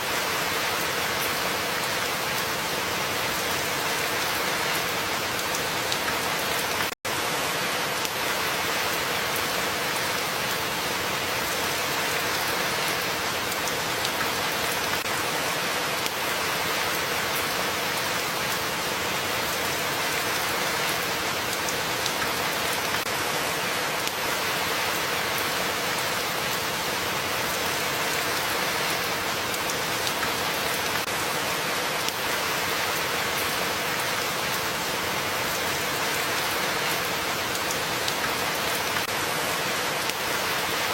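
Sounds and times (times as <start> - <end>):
dense rainfall: 0.0 - 40.9
raindrop patter: 26.8 - 40.9.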